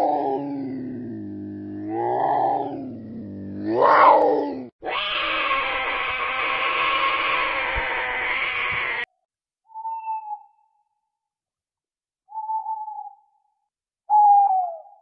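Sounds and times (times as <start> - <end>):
rising and falling animal calls: 0.0 - 9.1
rough hoarse animal call: 0.0 - 9.1.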